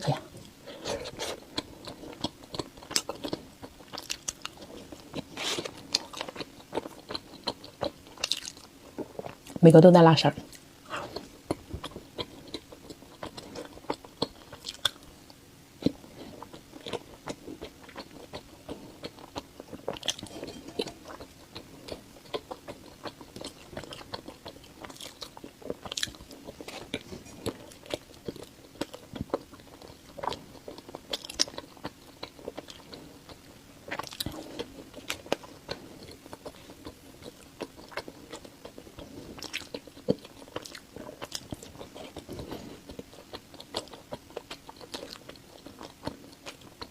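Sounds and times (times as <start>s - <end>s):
biting and chewing: 10.9s - 15.2s, 15.8s - 46.9s.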